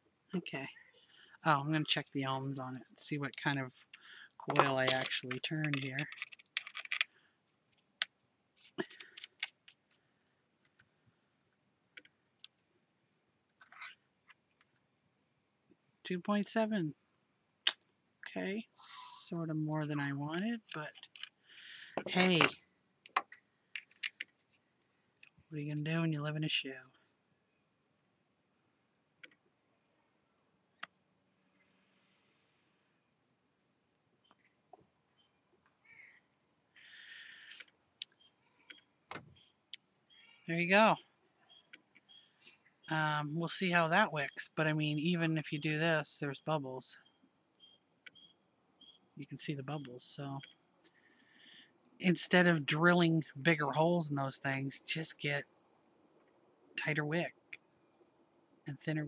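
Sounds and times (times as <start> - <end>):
faint high chirping: 0.0 - 55.8
small clicks: 3.9 - 10.0, 19.7 - 24.3
small sharp clicks: 4.0 - 7.2.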